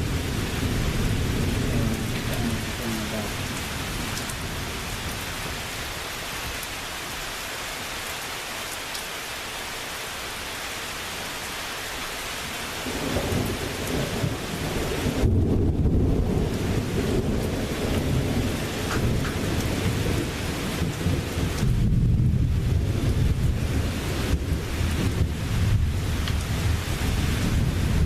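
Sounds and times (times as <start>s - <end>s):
thunder rumbling: 0.0s - 5.8s, 12.8s - 28.0s
steady rain: 0.0s - 28.0s.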